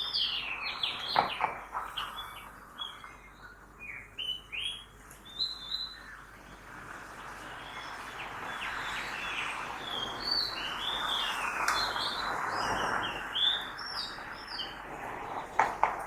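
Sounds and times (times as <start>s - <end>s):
city traffic hum: 6.5s - 16.0s
birds chirping: 7.2s - 14.9s.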